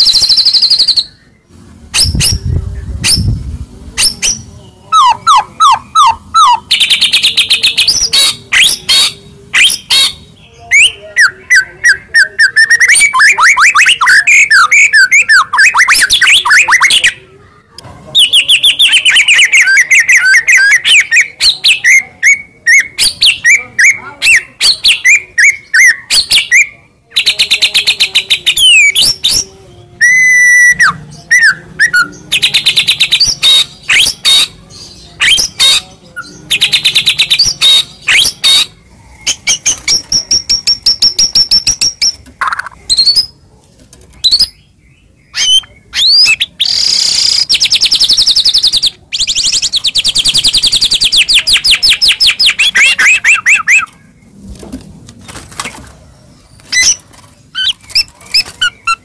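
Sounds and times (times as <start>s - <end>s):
songbird singing trills: 44.1s - 54.3s.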